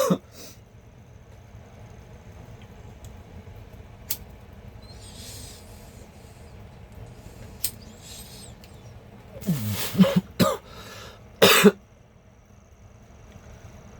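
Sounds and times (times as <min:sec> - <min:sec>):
low background rumble: 0:00.0 - 0:13.9
short soft hisses: 0:04.8 - 0:10.2
sharp clicks: 0:06.9 - 0:08.8.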